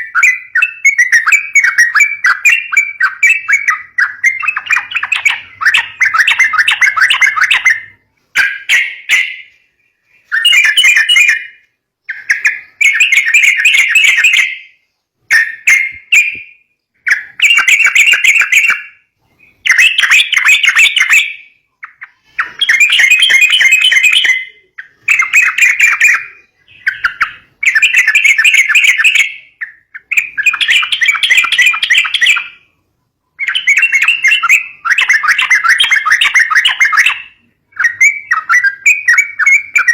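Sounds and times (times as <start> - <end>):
bird chattering calls: 0.0 - 16.4, 33.4 - 39.9.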